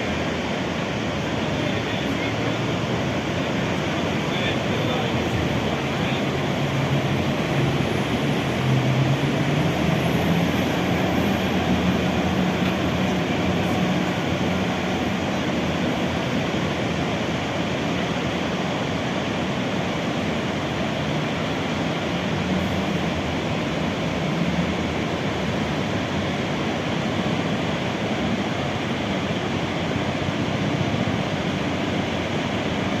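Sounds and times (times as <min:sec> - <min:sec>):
waterfall roaring: 0:00.0 - 0:33.0.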